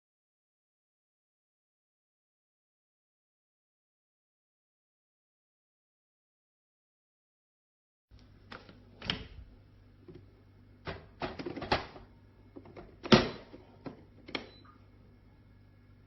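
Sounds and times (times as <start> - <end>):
faint low hum: 8.1 - 16.0.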